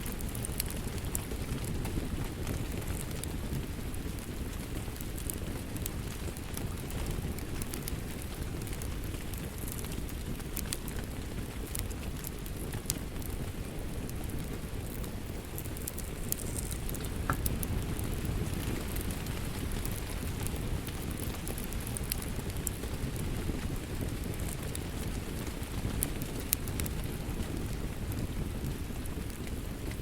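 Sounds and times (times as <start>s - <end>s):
wood fire crackling: 0.0s - 30.0s
sharp pops and snaps: 14.2s - 22.7s.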